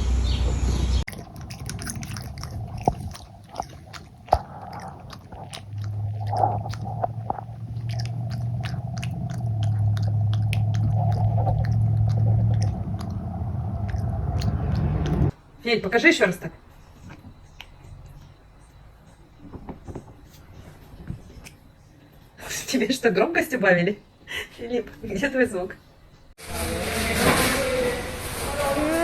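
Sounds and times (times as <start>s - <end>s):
low steady hum: 0.0s - 15.4s
cat crunching food: 1.1s - 15.3s.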